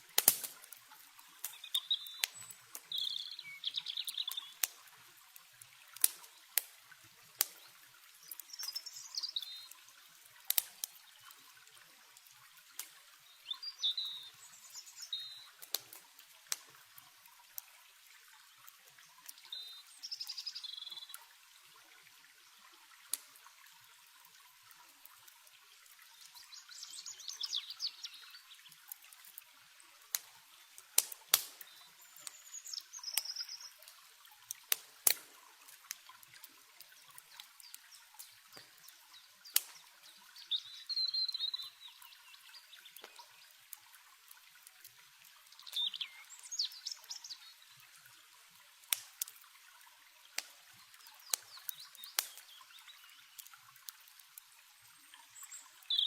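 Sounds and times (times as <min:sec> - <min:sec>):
campfire crackling pops: 0:00.0 - 0:03.2, 0:04.0 - 0:13.0, 0:15.5 - 0:17.8, 0:23.0 - 0:23.8, 0:28.7 - 0:40.3, 0:42.9 - 0:45.8, 0:48.8 - 0:49.5, 0:50.3 - 0:54.5
small birds chirping: 0:01.2 - 0:04.8, 0:07.4 - 0:16.1, 0:18.4 - 0:21.4, 0:26.0 - 0:29.0, 0:30.1 - 0:34.0, 0:36.2 - 0:43.8, 0:45.4 - 0:48.2, 0:50.3 - 0:56.0.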